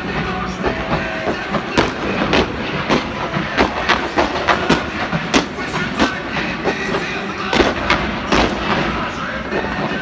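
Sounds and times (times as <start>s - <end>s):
fireworks bangs: 0.0s - 10.0s
steady noisy background: 0.0s - 10.0s.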